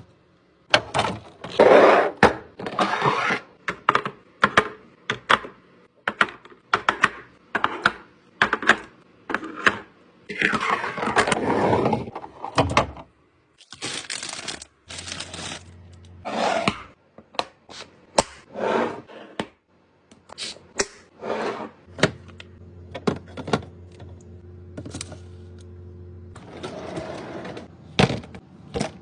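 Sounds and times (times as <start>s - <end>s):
plastic packaging handled: 13.6s - 15.8s
low steady hum: 21.9s - 29.0s.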